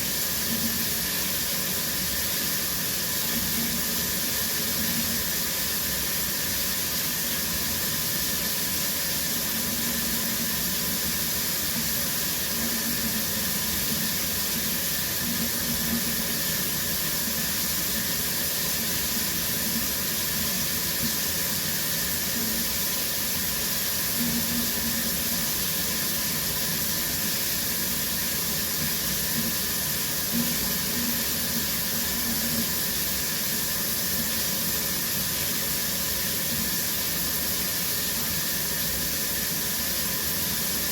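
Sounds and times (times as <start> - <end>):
shower water spray: 0.0 - 40.9.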